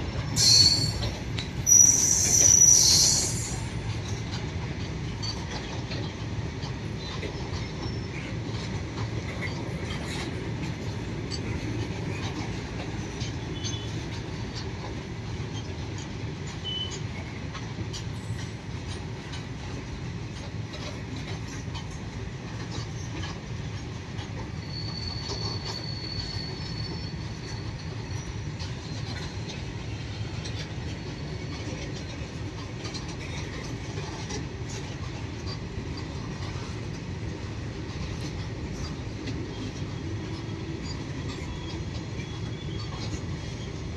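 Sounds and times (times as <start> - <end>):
freight train wagons rumbling: 0.0 - 43.9
high-pitched wheel squeal: 0.3 - 3.9, 24.6 - 27.7.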